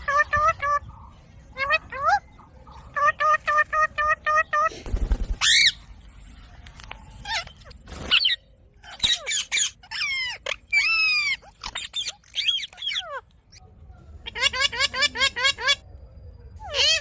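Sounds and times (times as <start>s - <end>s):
parakeet squawking: 5.4s - 5.8s, 8.1s - 13.6s.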